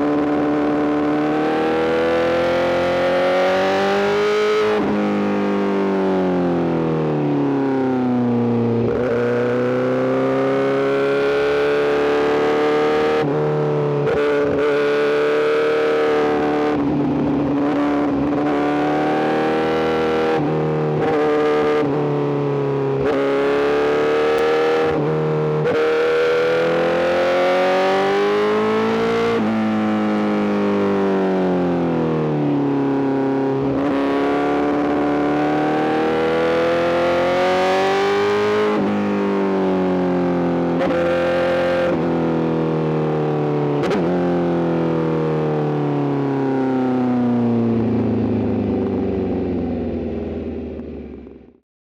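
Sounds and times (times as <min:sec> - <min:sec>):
motorcycle engine revving: 0:14.1 - 0:32.4, 0:33.3 - 0:42.8.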